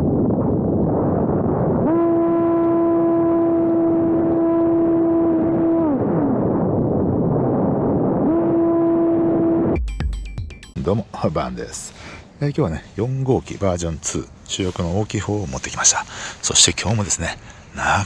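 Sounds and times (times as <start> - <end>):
wind noise on microphone: 0.0 - 9.8.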